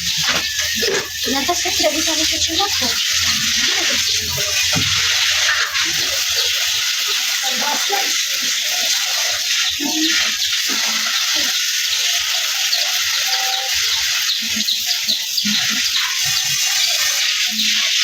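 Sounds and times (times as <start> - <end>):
running water splashing: 0.0 - 18.0.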